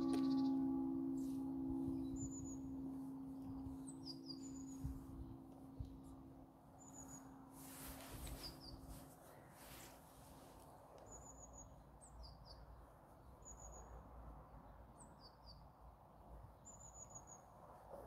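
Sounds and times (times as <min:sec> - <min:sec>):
faint bird chirping: 0:00.0 - 0:06.0
low steady rumble: 0:00.0 - 0:09.0.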